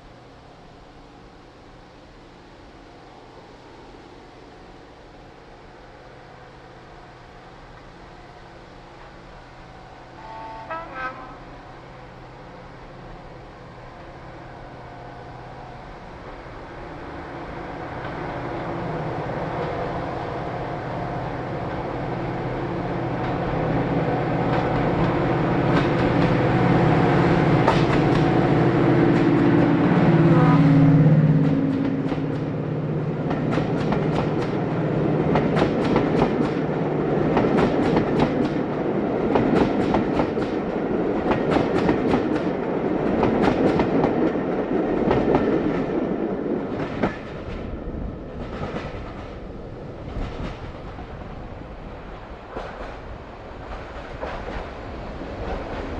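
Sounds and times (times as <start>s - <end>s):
diesel locomotive engine drone: 0.0s - 55.9s.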